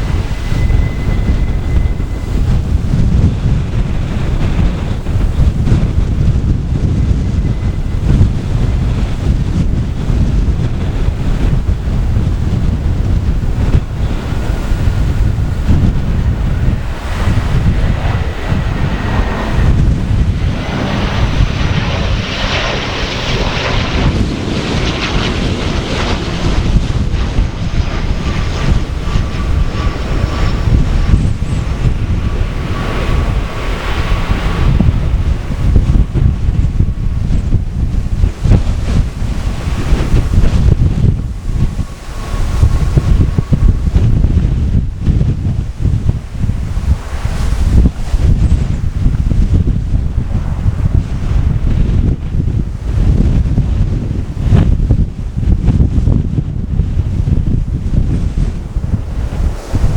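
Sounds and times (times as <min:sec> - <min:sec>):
thin high whine: 0:00.0 - 0:24.9
gusty wind buffeting microphone: 0:00.0 - 0:59.9
turboprop engines and propellers: 0:00.0 - 0:59.9.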